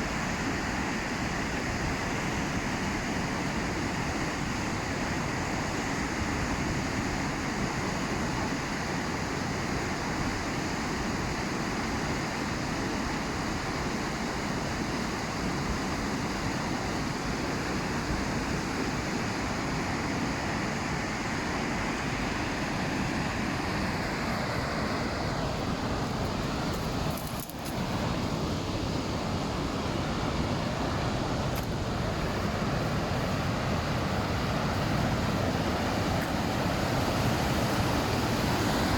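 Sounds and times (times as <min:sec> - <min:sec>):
river rapids rushing: 0:16.0 - 0:38.9.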